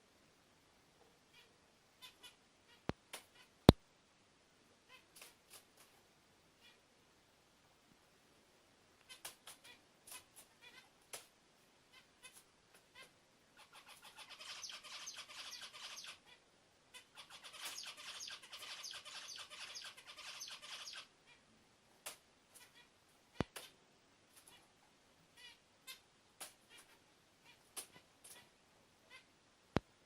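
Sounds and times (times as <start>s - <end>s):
bird chirps: 13.0s - 16.3s, 17.2s - 21.1s
songbird chattering song: 13.0s - 16.4s, 17.0s - 21.4s.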